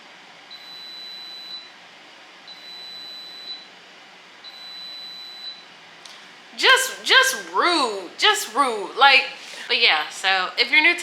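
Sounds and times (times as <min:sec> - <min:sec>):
electronic beeper beeping: 0:04.5 - 0:05.6.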